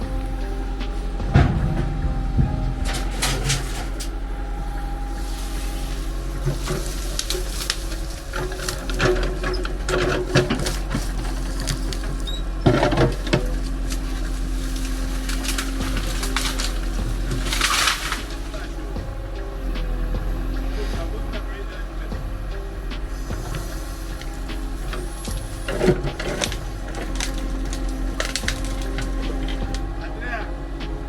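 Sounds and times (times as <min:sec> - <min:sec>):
steady low hum: 0:00.0 - 0:31.0
clicks and knocks: 0:22.1 - 0:29.9.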